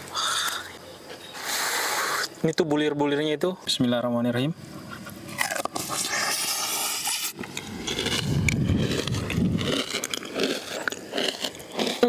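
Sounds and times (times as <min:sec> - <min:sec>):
crunchy chewing: 0:04.8 - 0:12.0.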